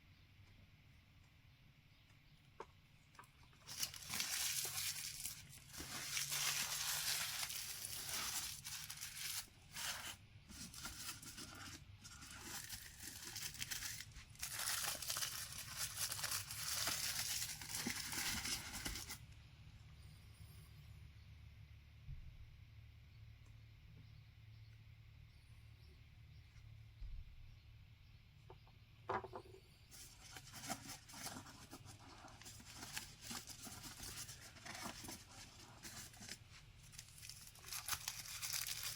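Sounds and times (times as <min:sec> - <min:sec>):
packaging crinkling and tearing: 0:03.6 - 0:19.2, 0:30.0 - 0:38.9.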